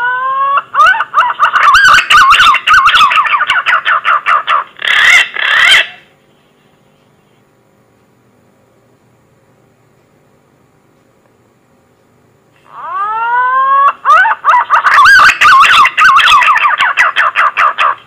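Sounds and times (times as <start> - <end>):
wavering whistled bird call: 1.5 - 3.8, 12.7 - 17.8.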